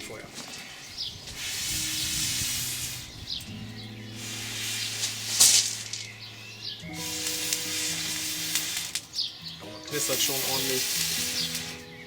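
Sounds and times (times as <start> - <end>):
background music chords: 0.0 - 12.0
air blown through blowpipe: 1.4 - 3.4.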